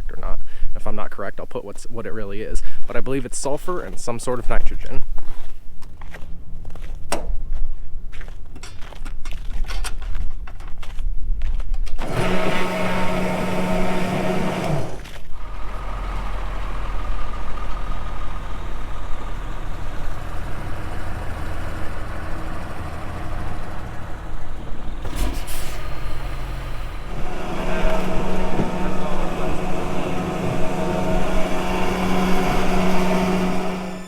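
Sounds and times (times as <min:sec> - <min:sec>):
heavy vehicle engines running: 0:12.0 - 0:34.0.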